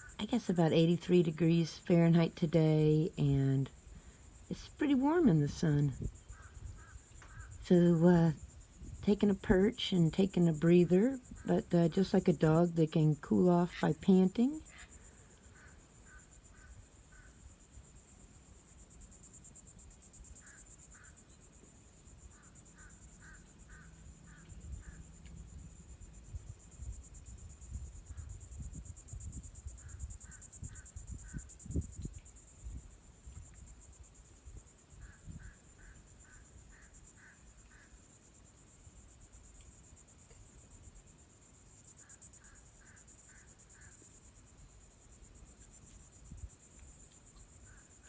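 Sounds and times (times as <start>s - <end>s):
high-pitched insect chorus: 0.0s - 48.0s
wind rumble on microphone: 5.0s - 9.7s, 24.5s - 33.8s, 34.4s - 35.6s.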